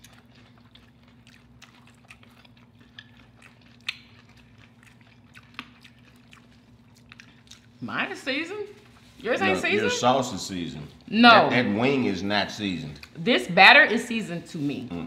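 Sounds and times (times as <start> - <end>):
chewing crunchy fried chicken: 0.0 - 9.2, 12.6 - 13.2
faint steady hum: 0.0 - 15.0.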